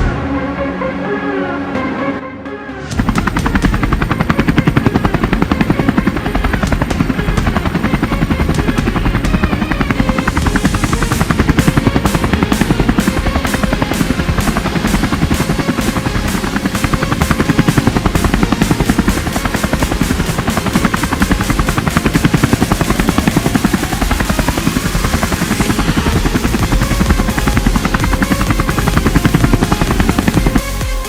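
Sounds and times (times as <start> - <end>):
propellers buzzing chop: 2.7 - 31.0
high motor whine: 2.8 - 31.0.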